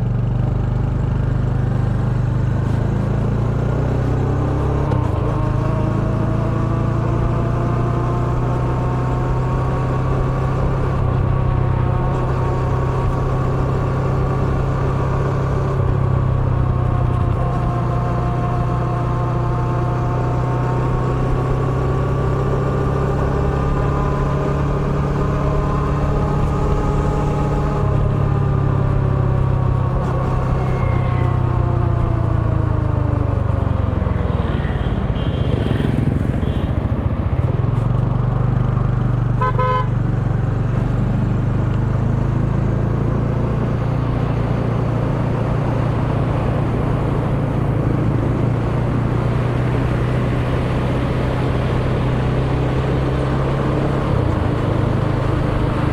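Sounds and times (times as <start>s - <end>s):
horn beep: 39.4s - 39.9s.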